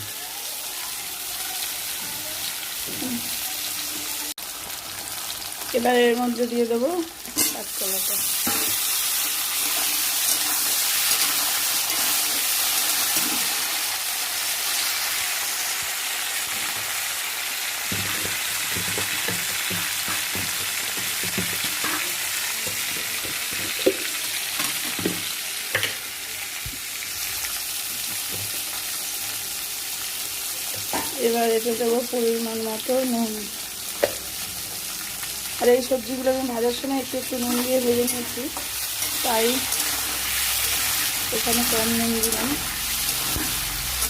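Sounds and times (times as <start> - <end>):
vegetables frying in oil: 0.0 - 44.0
spatula scraping a pan: 7.3 - 13.7, 37.4 - 44.0.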